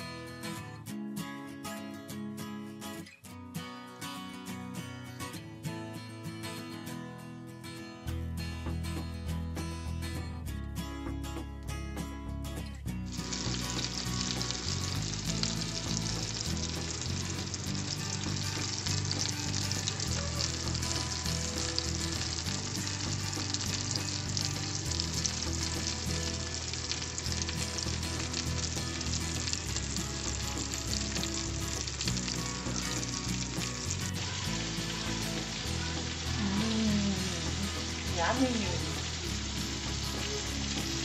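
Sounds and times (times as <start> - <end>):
mushrooms frying in hot fat: 13.0 - 41.0.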